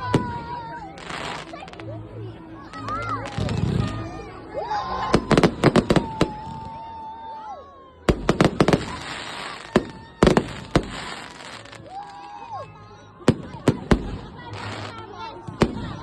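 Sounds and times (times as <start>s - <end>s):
fireworks bangs and cracks: 2.9s - 4.0s, 5.1s - 6.7s, 8.1s - 11.9s, 13.3s - 16.0s.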